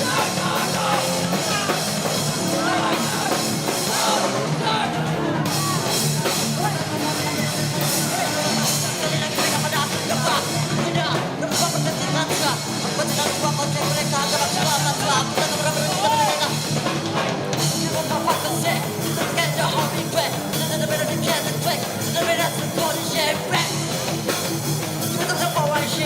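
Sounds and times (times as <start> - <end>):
shouted vocals: 0.0 - 16.6
bass guitar: 0.0 - 26.0
distorted guitars: 0.0 - 26.0
drum kit: 0.0 - 26.0.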